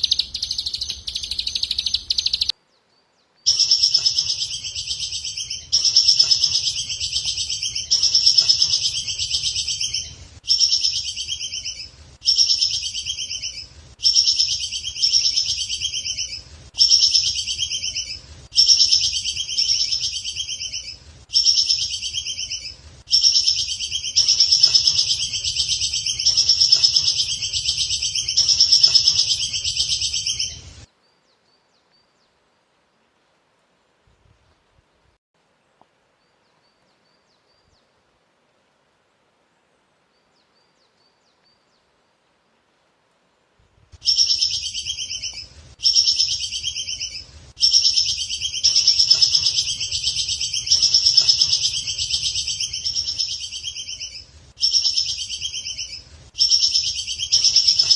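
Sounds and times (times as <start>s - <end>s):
songbird trilling: 0.0s - 2.5s, 3.5s - 30.8s, 44.0s - 57.9s.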